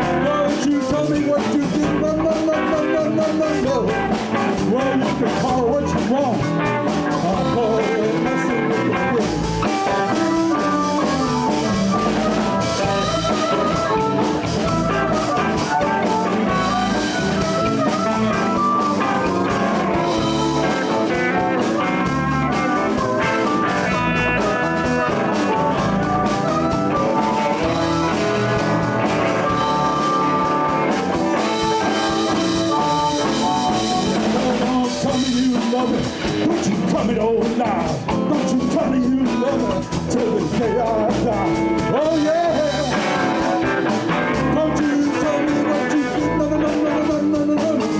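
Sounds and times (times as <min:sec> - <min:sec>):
bass: 0:00.0 - 0:47.9
drum kit: 0:00.0 - 0:47.9
electric guitar leading: 0:00.0 - 0:47.9.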